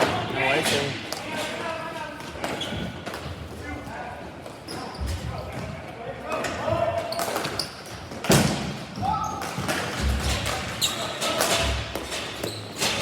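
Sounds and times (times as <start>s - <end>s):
hockey sticks and ball clacking: 6.3s - 13.0s.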